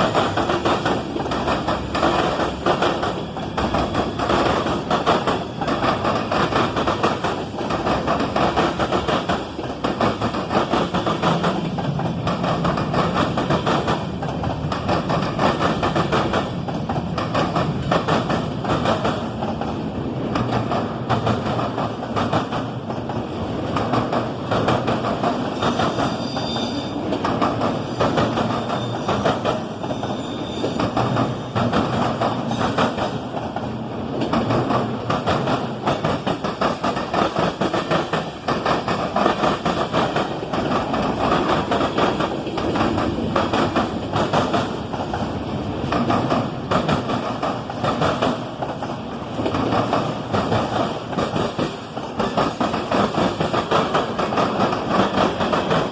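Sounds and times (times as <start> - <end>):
train wheels clattering over rail joints: 0.0 - 55.9
high wheel squeal: 26.1 - 27.0, 29.8 - 30.8.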